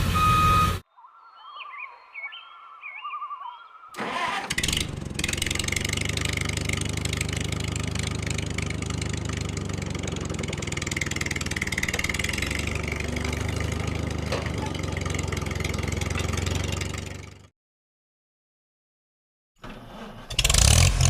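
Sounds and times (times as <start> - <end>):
engine starting and idling: 4.0 - 17.4, 19.6 - 21.0.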